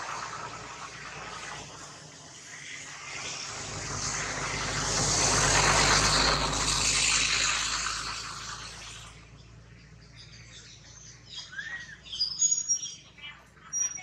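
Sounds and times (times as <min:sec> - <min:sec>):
loud rushing noise: 0:00.0 - 0:09.2
birds chirping: 0:08.0 - 0:14.0.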